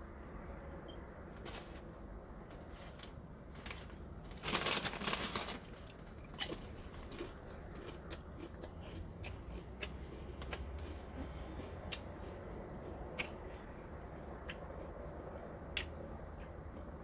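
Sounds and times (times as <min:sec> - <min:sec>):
crunchy chip being chewed: 0:04.4 - 0:13.6.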